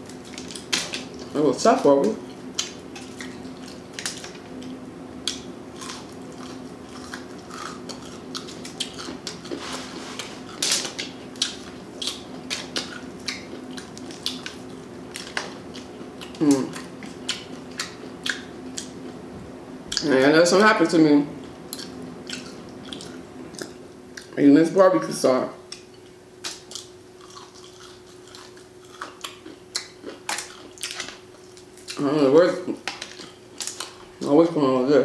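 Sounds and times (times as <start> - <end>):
person chewing: 0.0 - 1.4, 2.2 - 19.2, 19.9 - 20.2, 21.4 - 24.4, 25.7 - 34.2
crunching fried food: 0.0 - 19.2, 25.7 - 34.3
faint steady hum: 0.0 - 35.0.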